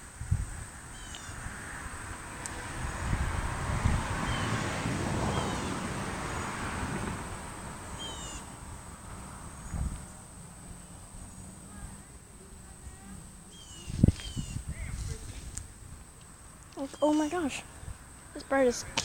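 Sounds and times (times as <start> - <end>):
birds chirping: 0.8 - 1.4, 4.1 - 6.7, 7.6 - 15.2, 16.2 - 19.0.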